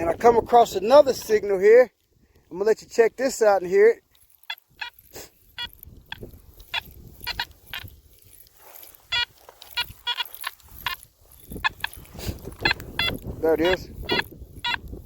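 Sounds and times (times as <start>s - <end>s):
metal detector beeps: 4.2s - 15.0s.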